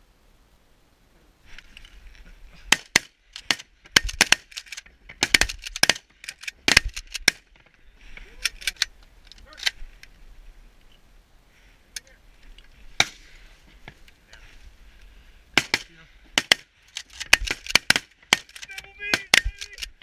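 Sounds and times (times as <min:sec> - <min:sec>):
shotgun shots: 0:02.7 - 0:04.6, 0:05.2 - 0:07.5, 0:15.5 - 0:19.8.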